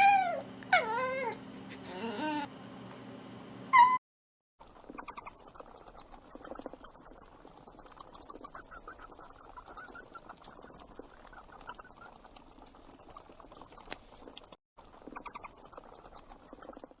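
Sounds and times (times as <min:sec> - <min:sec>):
rodent squeaking: 0:04.8 - 0:17.0.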